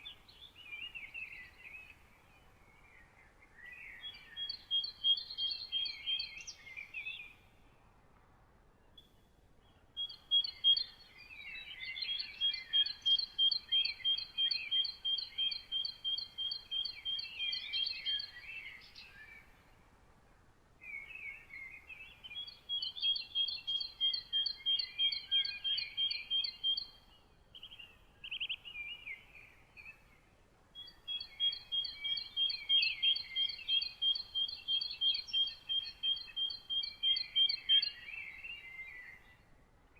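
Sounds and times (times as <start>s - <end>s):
lower bird twittering: 0.0s - 7.5s, 9.0s - 19.8s, 20.8s - 39.4s
songbirds singing high notes: 3.6s - 7.5s, 10.0s - 19.6s, 20.9s - 30.2s, 30.8s - 39.4s.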